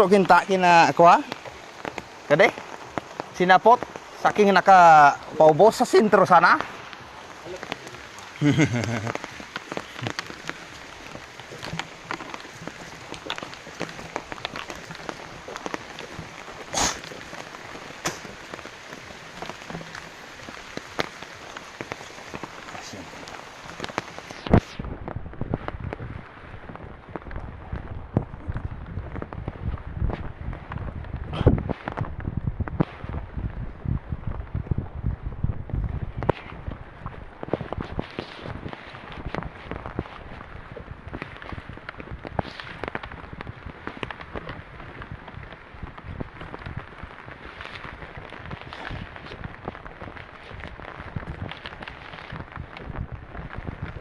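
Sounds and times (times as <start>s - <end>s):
drips and steps ticking: 0.0s - 32.8s, 35.7s - 54.0s
rain hissing: 0.0s - 35.1s, 35.7s - 54.0s.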